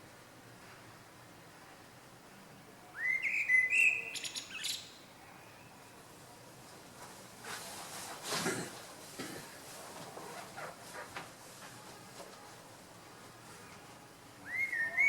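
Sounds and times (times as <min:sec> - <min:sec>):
bird whistling and chirping: 0:03.0 - 0:04.9, 0:14.4 - 0:15.0
short rustle: 0:06.6 - 0:14.0.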